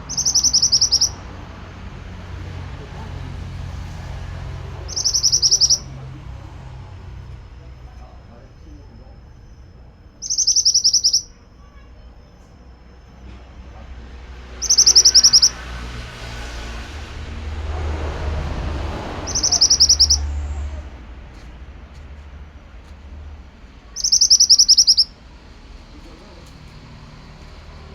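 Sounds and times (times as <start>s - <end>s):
bird singing high trilled phrases: 0.1s - 1.2s, 4.9s - 5.9s, 9.5s - 11.8s, 14.6s - 15.6s, 19.2s - 20.4s, 24.0s - 25.2s
low rumble: 12.6s - 24.0s.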